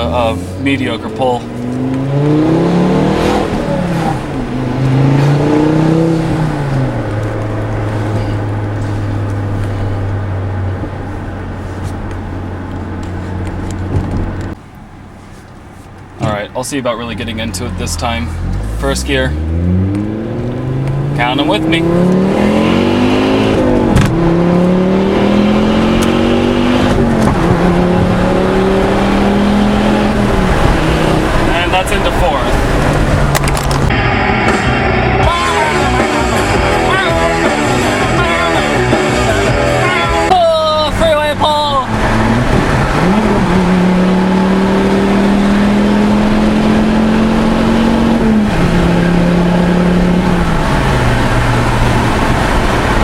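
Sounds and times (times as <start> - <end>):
car engine accelerating: 0.0 - 53.0
gear upshifts: 17.2 - 34.1.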